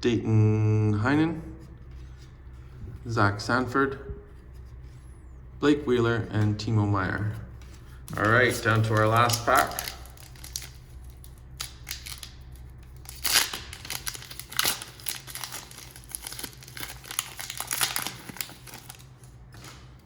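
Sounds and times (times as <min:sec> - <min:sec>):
steady low hum: 0:00.0 - 0:20.0
wrapper crinkling: 0:07.8 - 0:20.0.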